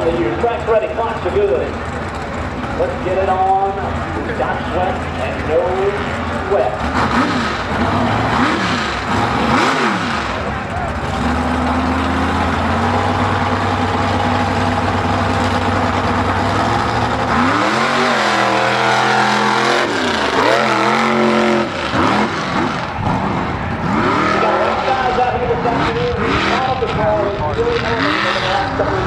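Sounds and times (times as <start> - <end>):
truck engine revving: 0.0 - 29.0.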